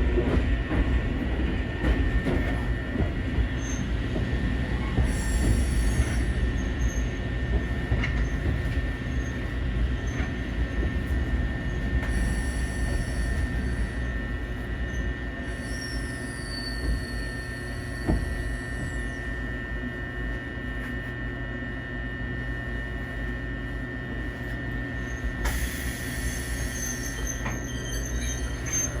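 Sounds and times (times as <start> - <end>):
train running with low rumble: 0.0 - 29.0
train wheels squealing: 2.2 - 19.8, 24.6 - 29.0.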